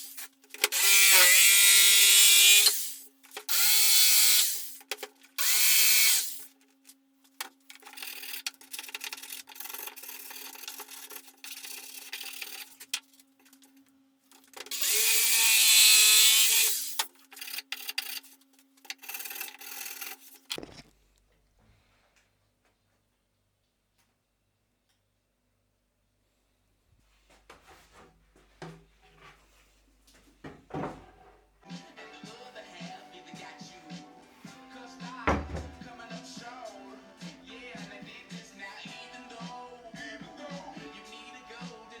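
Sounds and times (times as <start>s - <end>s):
power tool cutting wood: 0.0s - 4.8s, 5.4s - 6.4s, 14.7s - 17.0s.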